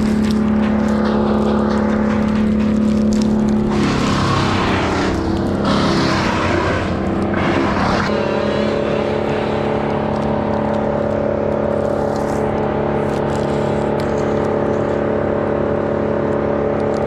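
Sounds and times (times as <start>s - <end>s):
loud rushing noise: 0.0s - 13.0s
motor engine running: 0.0s - 17.0s.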